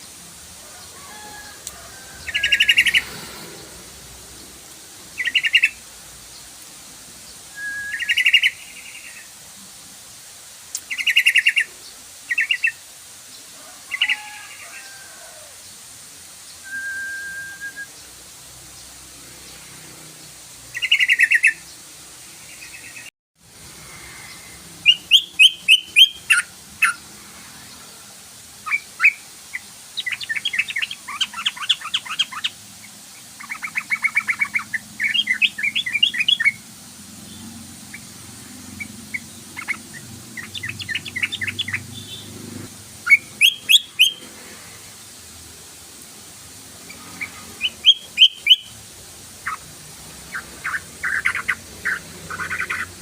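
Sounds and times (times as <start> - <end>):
bird song rapid chattering notes: 5.1 - 5.8, 7.9 - 9.2, 20.8 - 21.7, 24.8 - 27.1, 28.6 - 36.6, 38.7 - 42.4, 43.1 - 44.2, 46.9 - 48.8, 49.4 - 53.0.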